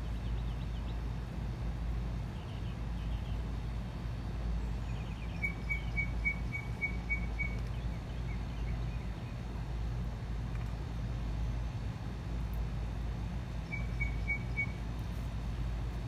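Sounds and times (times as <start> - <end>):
low background rumble: 0.0 - 16.0
bird chirping: 4.6 - 9.4, 13.6 - 14.8.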